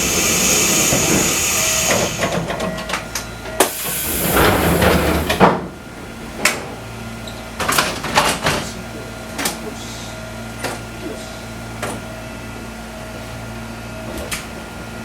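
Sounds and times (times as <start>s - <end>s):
compressed air hiss: 0.0s - 2.4s, 3.7s - 4.6s.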